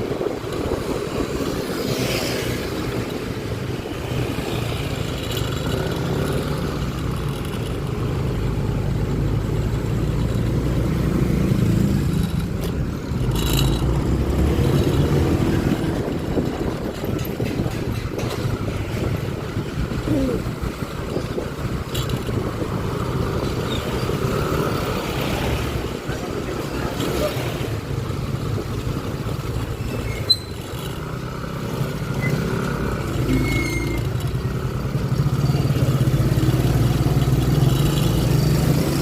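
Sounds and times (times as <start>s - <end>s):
road and traffic noise: 0.0s - 39.0s
scooter engine running: 1.6s - 17.9s.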